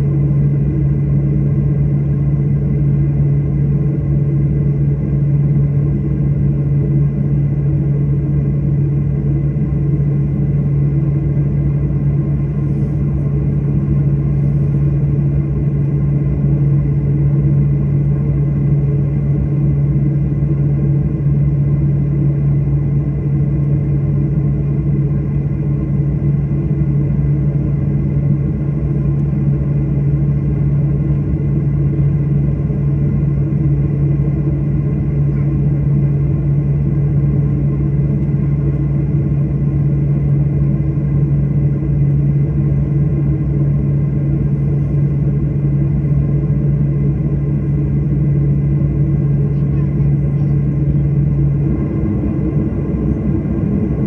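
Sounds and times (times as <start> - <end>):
airliner cabin engine drone: 0.0 - 54.0.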